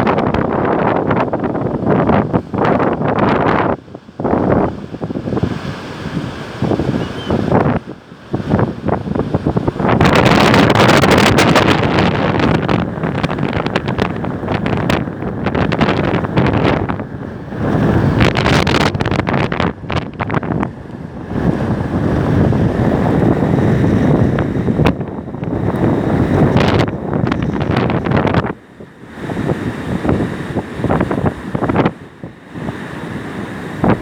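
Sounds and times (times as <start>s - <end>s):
rough surf: 0.0s - 34.0s
wind buffeting microphone: 0.0s - 34.0s.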